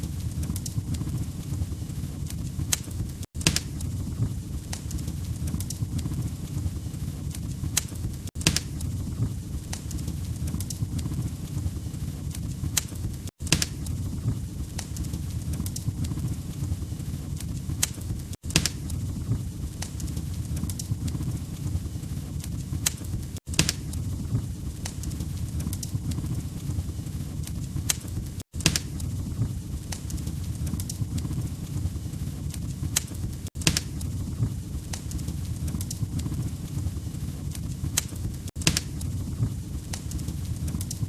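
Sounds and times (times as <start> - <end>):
log fire crackling and popping: 0.0 - 41.0.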